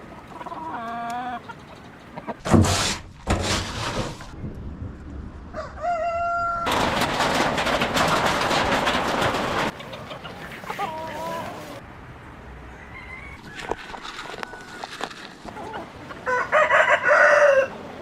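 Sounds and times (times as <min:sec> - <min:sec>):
chickens calling: 0:00.0 - 0:02.5, 0:05.6 - 0:11.8.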